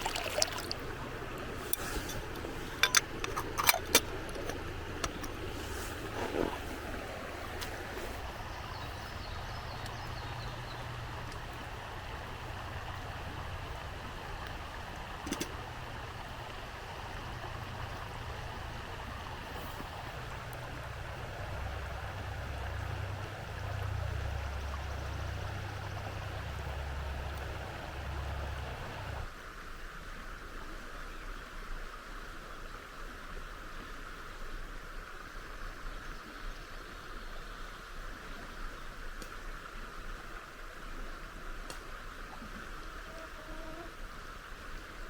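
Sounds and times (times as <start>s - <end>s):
river water rushing: 0.0s - 29.3s.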